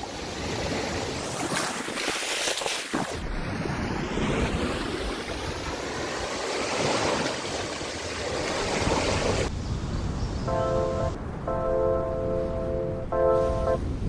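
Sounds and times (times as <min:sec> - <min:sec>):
waves breaking against shore: 0:00.0 - 0:09.5.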